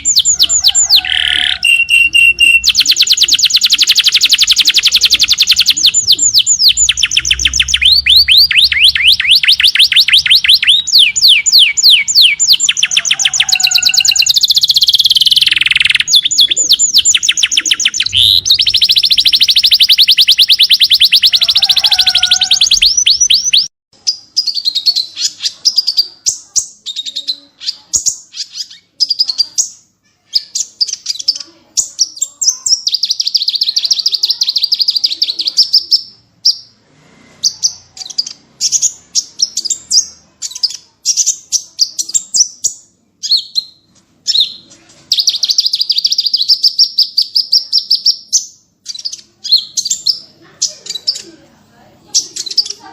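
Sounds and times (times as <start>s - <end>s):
songbirds trilling: 0.0s - 36.7s
bird chirps: 0.0s - 36.8s, 37.4s - 51.3s.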